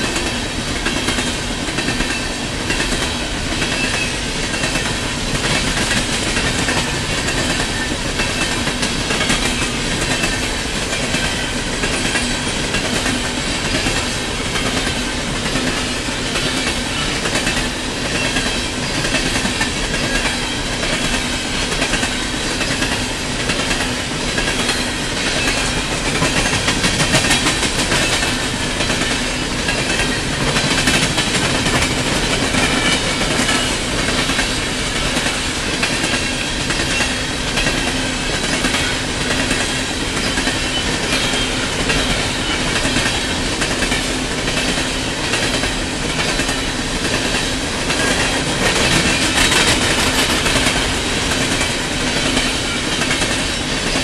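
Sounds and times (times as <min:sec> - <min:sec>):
steel wheels running on rails: 0:00.0 - 0:54.0.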